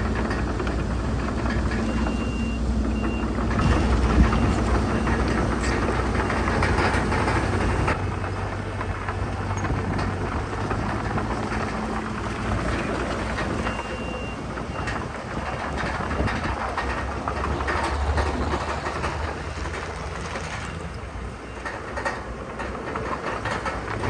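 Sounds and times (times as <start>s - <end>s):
diesel engines running: 0.0s - 24.0s
tracks clanking and crunching rock: 0.0s - 24.0s
reversing alarm beeping: 1.7s - 8.0s, 13.6s - 15.1s.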